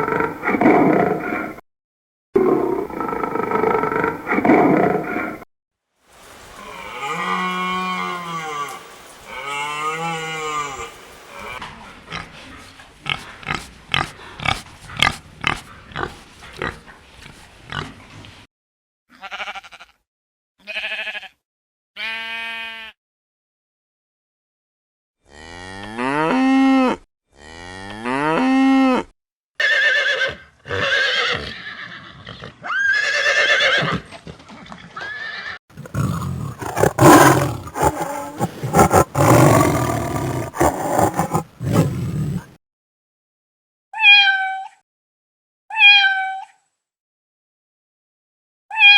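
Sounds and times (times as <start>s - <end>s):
long drawn-out animal calls: 35.0s - 42.5s
harsh noisy animal call: 35.8s - 42.6s.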